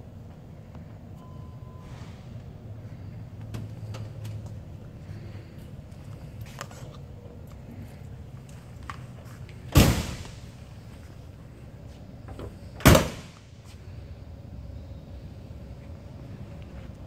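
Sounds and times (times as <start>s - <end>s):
car door slamming: 9.7s - 10.4s, 12.8s - 13.4s.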